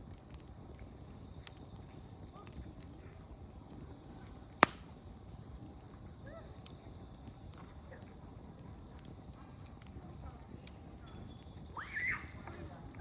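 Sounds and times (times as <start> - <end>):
faint ticks: 0.0 - 6.0
campfire burning: 0.0 - 13.0
firewood popping: 0.0 - 13.0
faint distant voices: 1.8 - 13.0.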